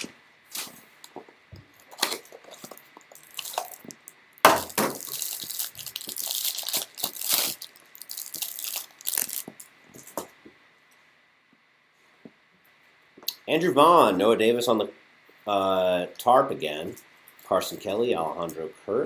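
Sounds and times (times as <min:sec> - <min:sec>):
packaging crinkling and tearing: 0:00.0 - 0:00.8, 0:01.8 - 0:09.7.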